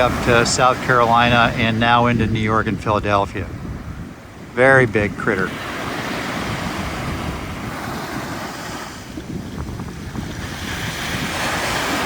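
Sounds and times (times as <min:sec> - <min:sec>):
ocean surf washing onto beach: 0:00.0 - 0:12.0
wind buffeting microphone: 0:00.0 - 0:12.0.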